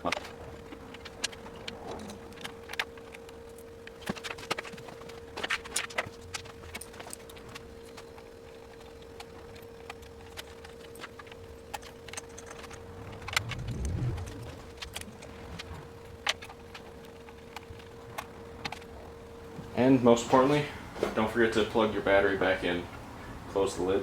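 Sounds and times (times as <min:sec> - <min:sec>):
faint steady hum: 0:00.0 - 0:24.0
low bump: 0:12.8 - 0:15.1.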